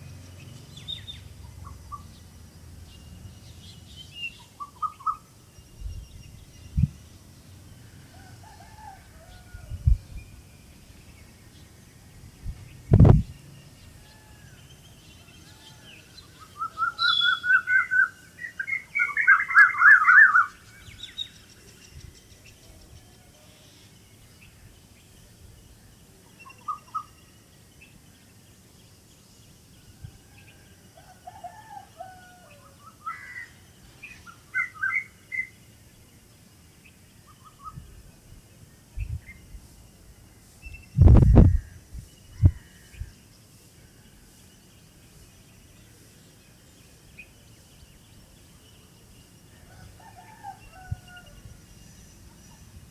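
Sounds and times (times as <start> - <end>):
birds chirping and singing: 12.5 - 23.9.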